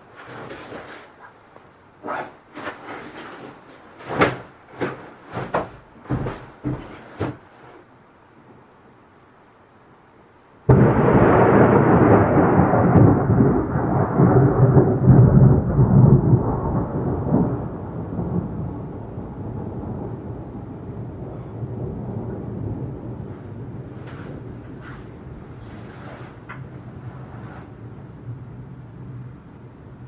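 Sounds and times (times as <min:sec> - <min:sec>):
thunderclap: 0:10.7 - 0:29.7.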